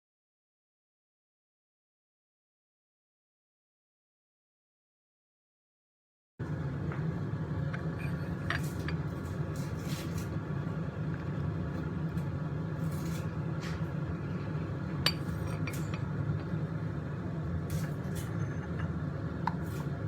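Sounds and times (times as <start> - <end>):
steady low rumble: 6.4 - 20.0.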